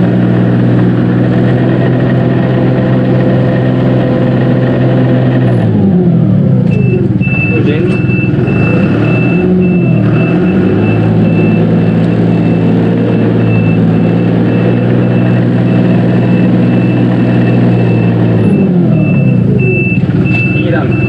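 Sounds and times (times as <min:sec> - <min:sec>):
tractor diesel engine running: 0:00.0 - 0:21.0
high electronic beep: 0:06.7 - 0:21.0.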